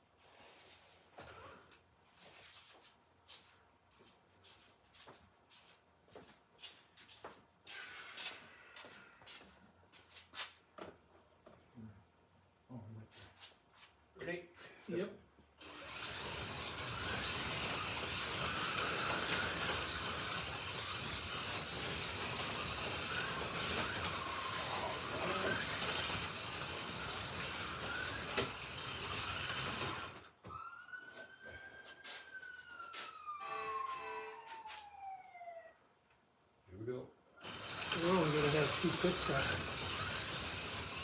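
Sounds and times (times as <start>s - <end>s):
slot cars whirring: 15.6s - 30.3s, 37.4s - 41.0s
falling electronic tone: 33.2s - 35.7s.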